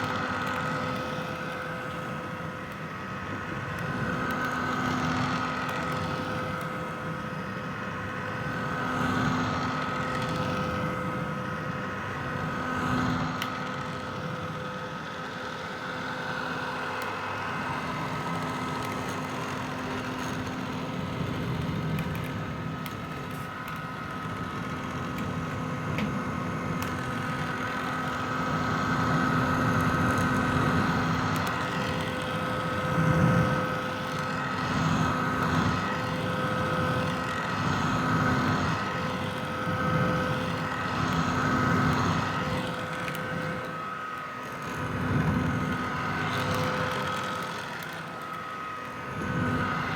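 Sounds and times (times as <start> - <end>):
hair dryer motor whine: 0.0 - 49.9
hair dryer air rushing: 30.0 - 49.9.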